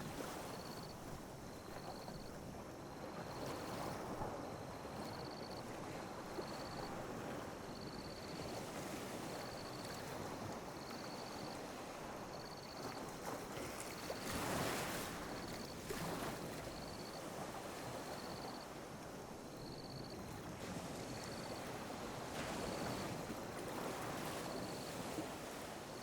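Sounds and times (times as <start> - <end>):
gentle waves lapping: 0.0 - 26.0.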